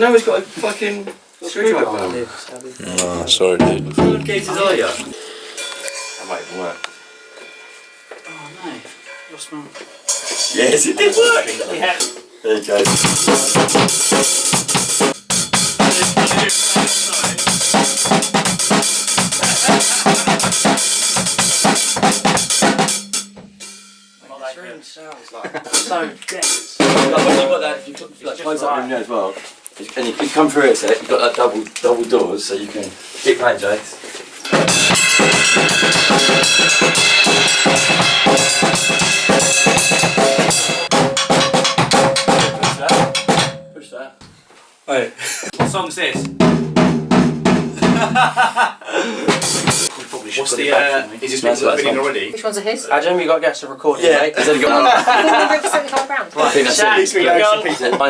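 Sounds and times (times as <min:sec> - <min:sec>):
acoustic drum kit beat: 0:03.2 - 0:09.2, 0:09.8 - 0:24.3, 0:25.6 - 0:27.9, 0:34.4 - 0:43.7, 0:45.5 - 0:49.9
cymbals ringing: 0:03.6 - 0:12.2, 0:12.8 - 0:24.8, 0:34.5 - 0:43.8.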